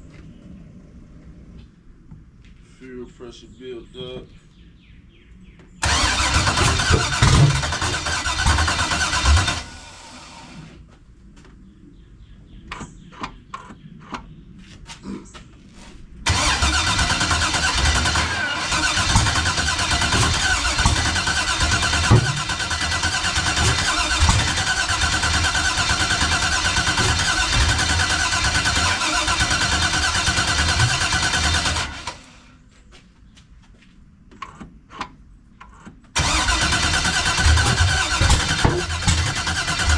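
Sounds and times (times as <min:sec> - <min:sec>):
engine cranking without starting: 0:05.8 - 0:10.7, 0:16.3 - 0:32.3, 0:36.2 - 0:39.9.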